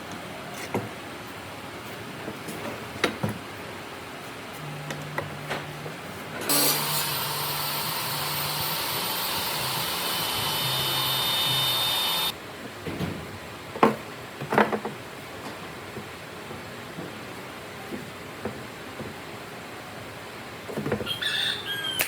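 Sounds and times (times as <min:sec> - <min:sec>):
power tool whining: 0:06.5 - 0:12.3.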